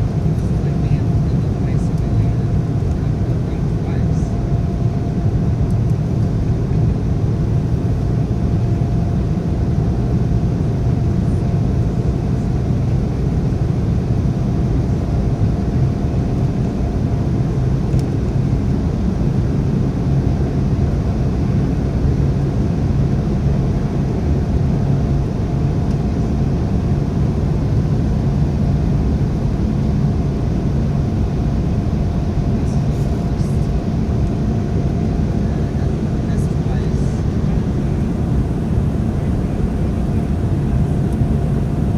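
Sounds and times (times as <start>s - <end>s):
jet engine cabin rumble: 0.0s - 41.9s
faint steady whine: 23.9s - 41.9s.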